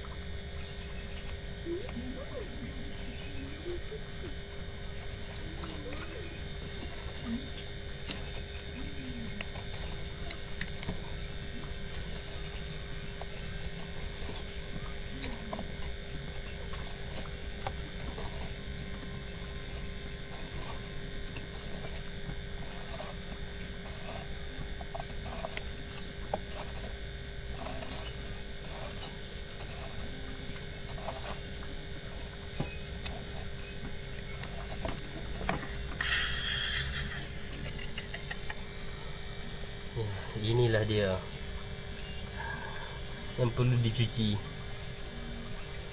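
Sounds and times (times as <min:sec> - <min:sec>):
steady background hum: 0:00.0 - 0:45.9.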